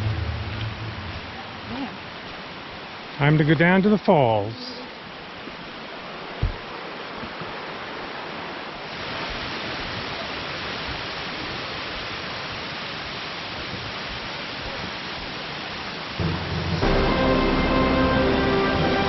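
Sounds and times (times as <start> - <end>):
waterfall rushing: 0.0 - 19.0
low thump: 6.4 - 6.7.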